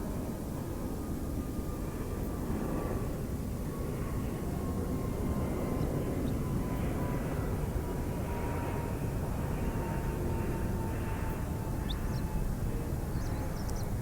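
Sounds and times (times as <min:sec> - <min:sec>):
distant engine drone: 0:04.1 - 0:14.0.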